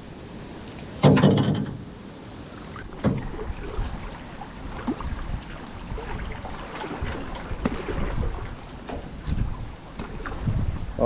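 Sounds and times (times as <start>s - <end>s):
sharp knock on canoe: 1.0s - 1.8s, 3.0s - 3.4s
water splashing against paddle: 2.5s - 11.0s.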